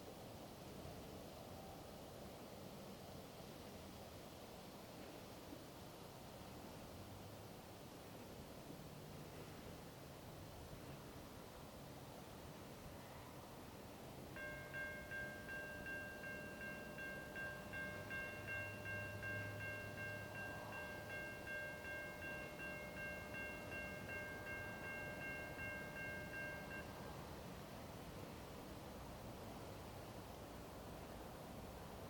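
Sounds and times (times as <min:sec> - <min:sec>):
railroad crossing bell ringing: 0:14.3 - 0:27.4.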